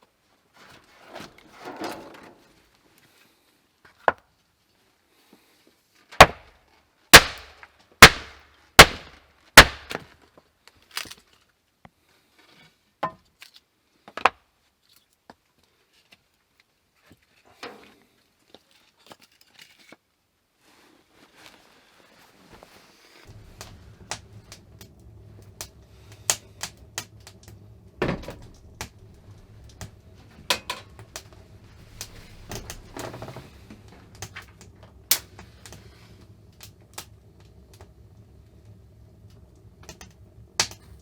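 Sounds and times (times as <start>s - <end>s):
quieter knocks: 23.3s - 34.7s.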